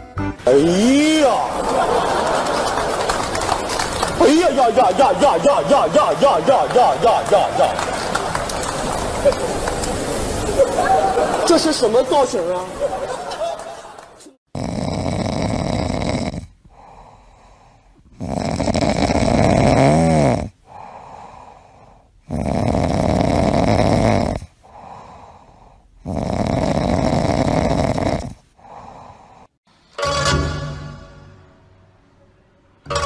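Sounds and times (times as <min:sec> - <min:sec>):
animal snoring: 0:14.5 - 0:17.0, 0:18.0 - 0:21.0, 0:22.2 - 0:25.0, 0:26.0 - 0:28.9.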